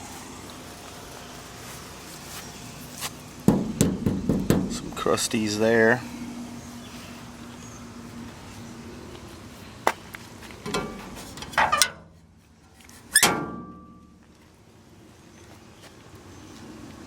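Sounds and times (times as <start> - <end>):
metal door slam ringing: 3.5 - 5.1, 10.7 - 12.1, 13.2 - 14.0.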